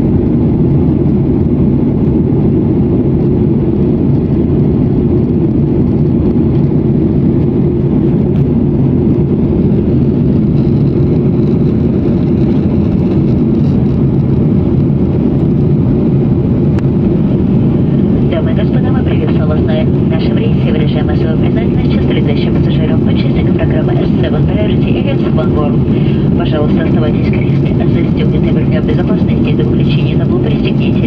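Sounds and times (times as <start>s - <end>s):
jet engines droning: 0.0s - 31.0s
rushing air: 14.6s - 18.9s, 25.4s - 28.8s.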